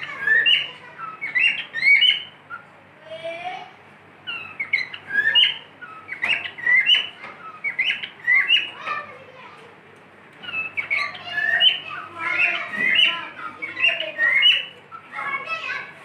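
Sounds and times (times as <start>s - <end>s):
cockatiel whistling and chirping: 0.0s - 2.7s, 4.2s - 8.8s, 10.4s - 15.8s.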